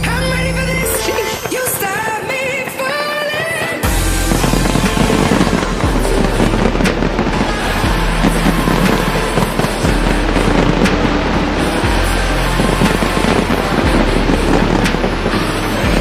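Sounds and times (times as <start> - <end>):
fireworks bursting and crackling: 0.0 - 16.0
loud music with deep bass: 3.8 - 16.0.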